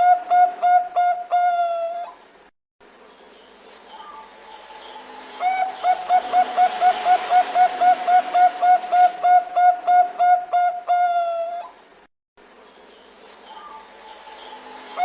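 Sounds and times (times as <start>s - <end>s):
dove cooing: 0.0s - 2.2s, 4.9s - 11.8s.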